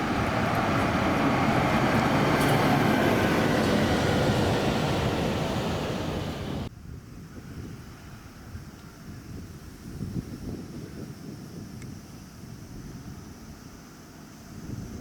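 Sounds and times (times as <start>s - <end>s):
bus passing close by: 0.0s - 6.7s.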